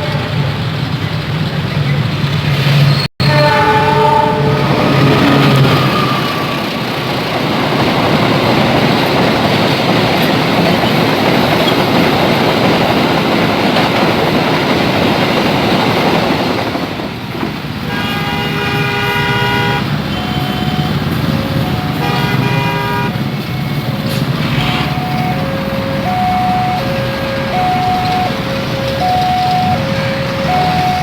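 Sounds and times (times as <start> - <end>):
train horn: 0.0 - 0.6, 3.2 - 6.8, 17.8 - 20.7, 21.7 - 23.3, 24.6 - 31.0
train wheels rumbling on rails: 0.0 - 31.0.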